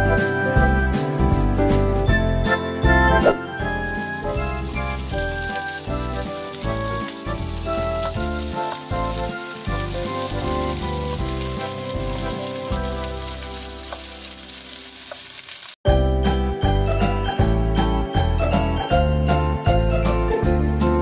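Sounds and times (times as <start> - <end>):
background music: 0.0 - 15.0, 15.9 - 21.0
onions sizzling in hot oil: 3.6 - 15.8
wooden spatula stirring: 8.4 - 15.8.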